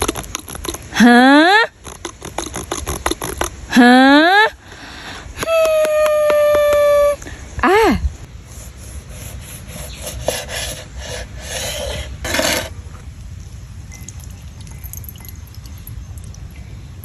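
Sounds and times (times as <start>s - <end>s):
hand rubbing or scraping: 8.4s - 13.0s.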